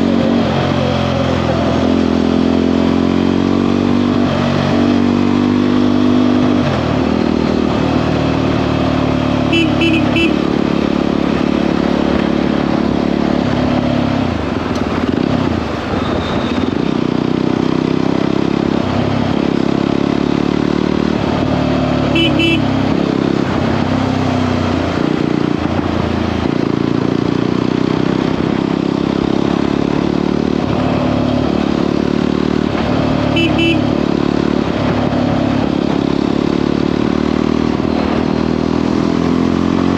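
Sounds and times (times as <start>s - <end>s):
motorcycle engine running: 0.0s - 39.9s
short high horn toots: 9.5s - 10.4s, 22.2s - 22.7s, 33.3s - 33.9s.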